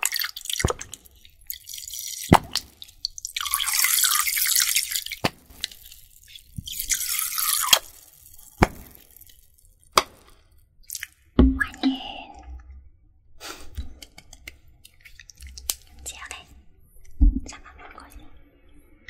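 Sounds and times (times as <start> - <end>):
running water: 0.0 - 10.1.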